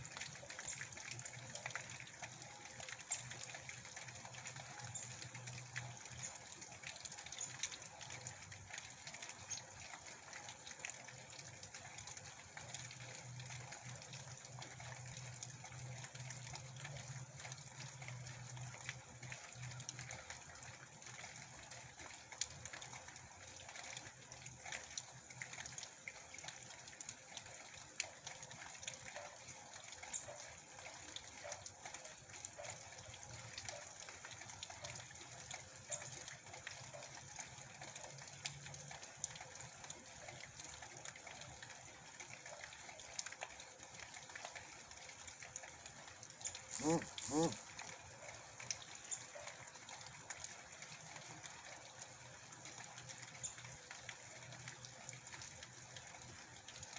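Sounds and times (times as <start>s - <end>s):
water drops ticking: 0.0s - 20.4s
water running and gushing: 0.0s - 56.9s.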